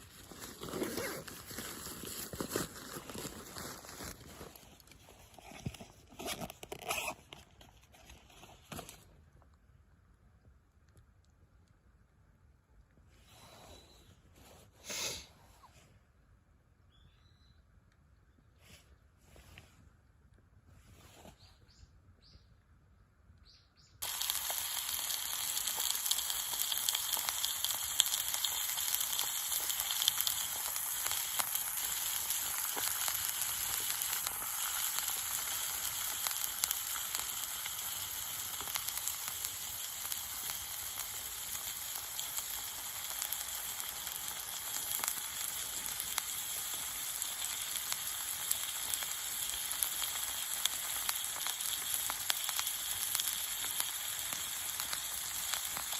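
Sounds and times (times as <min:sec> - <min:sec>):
steak sizzling in frying pan: 0:24.0 - 0:55.9.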